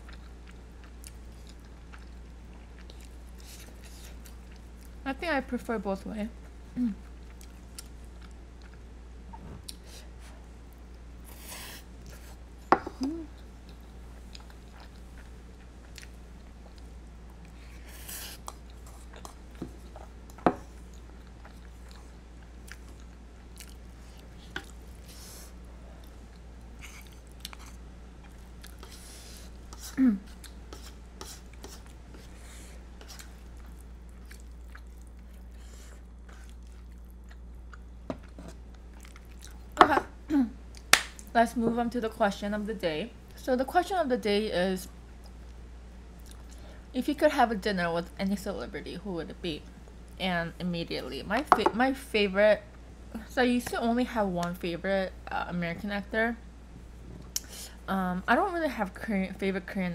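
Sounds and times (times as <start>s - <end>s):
person chewing pasta: 0.0s - 5.0s, 7.0s - 12.4s, 13.2s - 39.8s, 45.1s - 46.8s.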